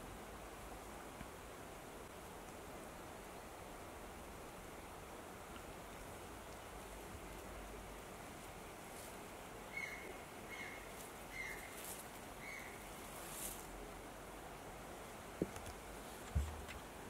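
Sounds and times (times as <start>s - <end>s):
faint outdoor hiss: 0.0s - 17.0s
bird calling: 9.7s - 13.0s.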